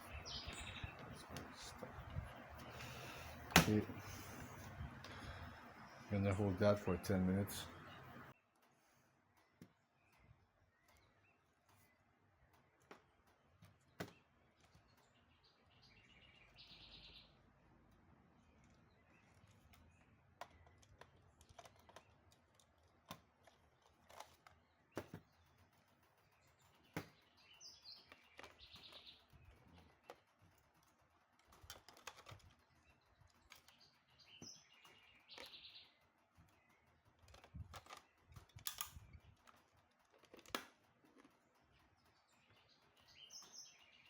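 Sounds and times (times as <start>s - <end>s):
birds chirping: 0.0s - 44.0s
faint clicks and taps: 8.1s - 15.2s, 17.9s - 27.3s.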